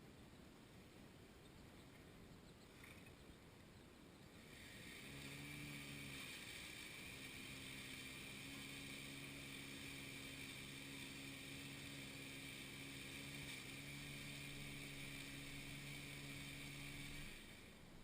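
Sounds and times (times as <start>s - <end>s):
engine running: 4.2s - 18.0s.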